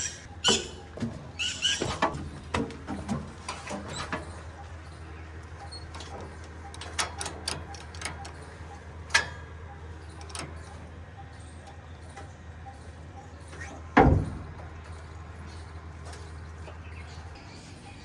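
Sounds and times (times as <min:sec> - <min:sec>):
heavy diesel machinery humming: 0:02.2 - 0:13.2.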